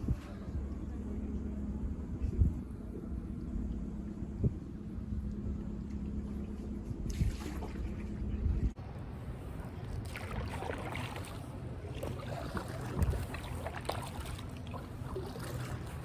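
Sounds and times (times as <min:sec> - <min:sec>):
wind on microphone: 0:00.0 - 0:08.8, 0:12.3 - 0:14.0
paddle strokes splashing in water: 0:07.0 - 0:08.2, 0:09.8 - 0:16.0.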